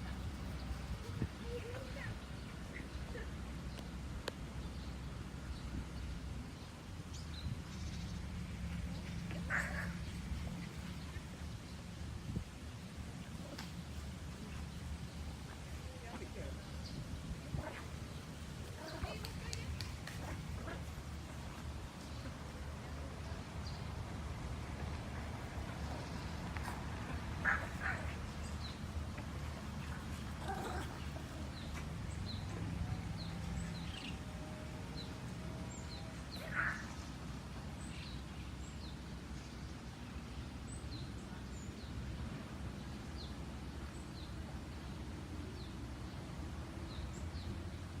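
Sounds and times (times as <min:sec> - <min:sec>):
small birds chirping: 0:24.8 - 0:34.3.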